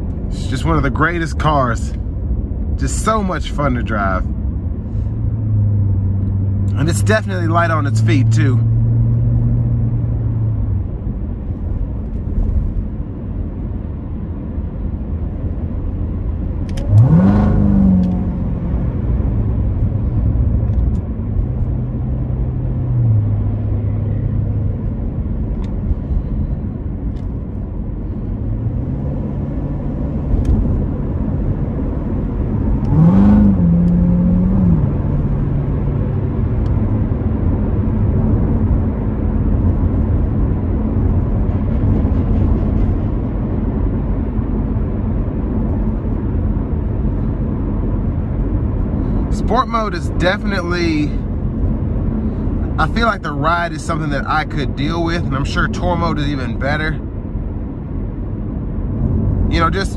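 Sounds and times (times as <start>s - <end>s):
road noise: 0.0s - 59.9s
car engine revving: 2.8s - 11.0s, 16.6s - 26.3s, 27.1s - 43.2s.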